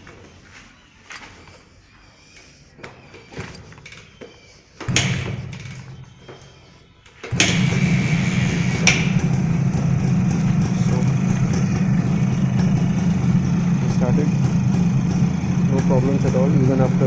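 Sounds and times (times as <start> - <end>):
kickstart knocks: 4.9 - 6.4, 7.3 - 17.0
motorcycle engine starting and running: 4.9 - 6.4, 7.2 - 17.0.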